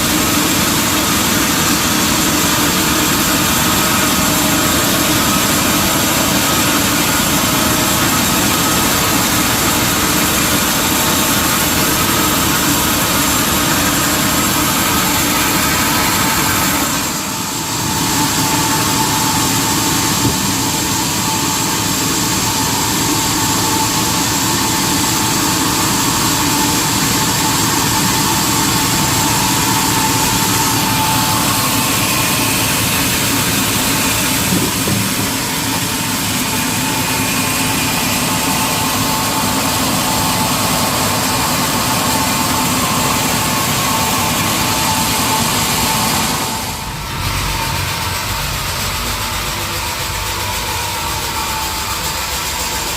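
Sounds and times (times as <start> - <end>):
sawmill machinery running: 0.0 - 52.9
steady high tone: 2.4 - 52.9.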